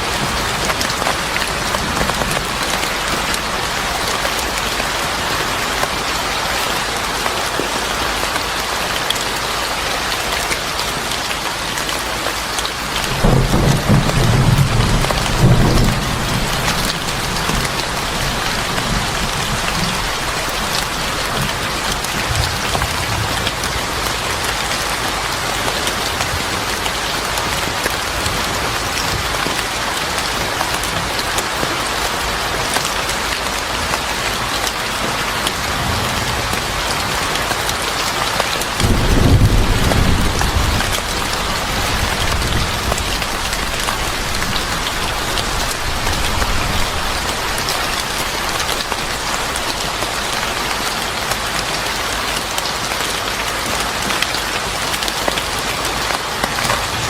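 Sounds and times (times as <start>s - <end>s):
heavy rain falling: 0.0s - 57.0s
deep rumble of thunder: 12.9s - 24.6s, 38.8s - 49.9s.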